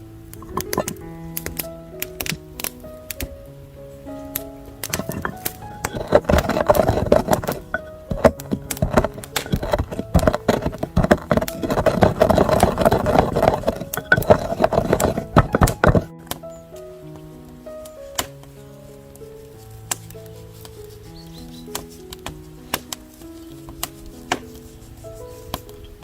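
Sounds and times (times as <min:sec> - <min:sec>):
background music: 0:00.0 - 0:26.0.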